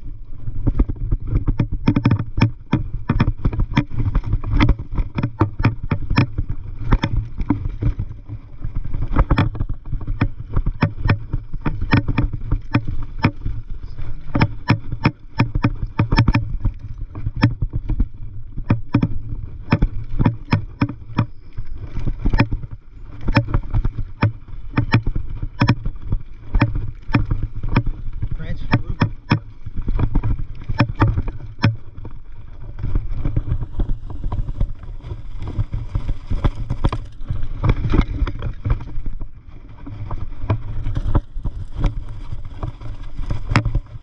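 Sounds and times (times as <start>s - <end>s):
bike rumbling over dirt trail: 0.0s - 44.0s
bike knocks and clicks: 1.4s - 8.0s, 9.1s - 13.5s, 14.3s - 18.0s, 18.6s - 21.4s, 22.2s - 22.6s, 23.2s - 31.9s.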